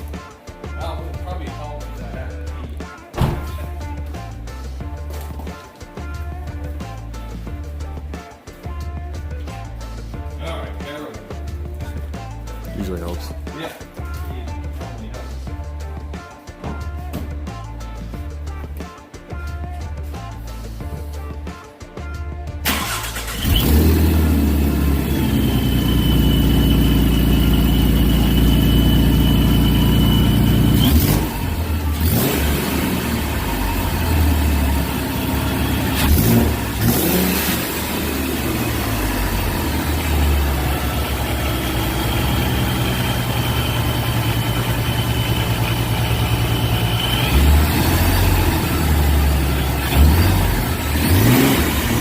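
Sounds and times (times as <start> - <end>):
car engine revving: 22.6 - 52.0
supercharger whine: 23.3 - 52.0.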